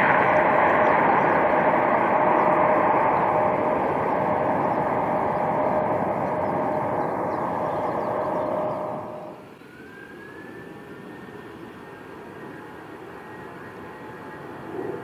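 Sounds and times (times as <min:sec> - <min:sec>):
quiet engine rumble: 0:00.0 - 0:09.8
faint rising whine: 0:00.0 - 0:15.0
jet engines rushing with whine: 0:00.0 - 0:15.0.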